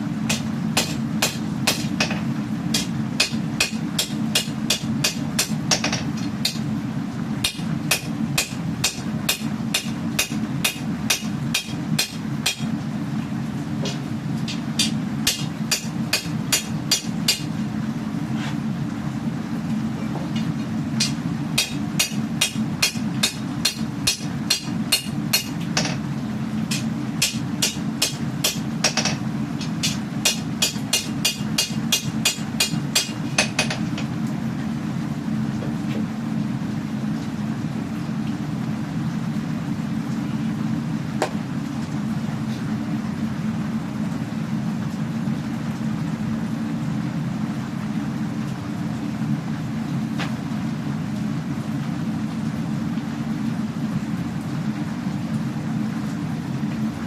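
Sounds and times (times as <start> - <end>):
forge droning: 0.0 - 57.0
hammer striking steel on anvil: 0.3 - 6.6, 7.4 - 12.7, 13.8 - 17.5, 20.4 - 26.0, 26.7 - 33.9.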